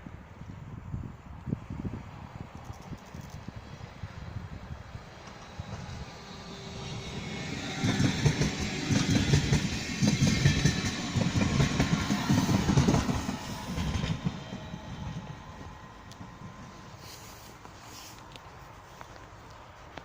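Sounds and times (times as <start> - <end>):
train wheels clattering: 5.1 - 17.8.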